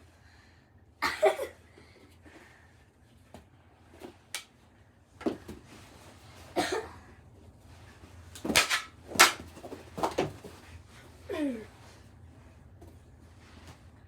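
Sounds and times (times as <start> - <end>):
plastic sticks knocking on floor: 8.4 - 10.3.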